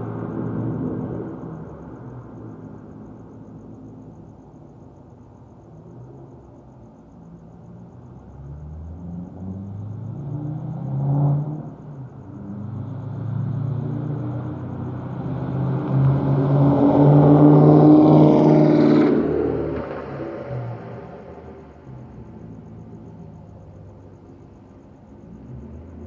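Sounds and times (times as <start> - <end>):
car driving by accelerating: 8.4 - 26.0.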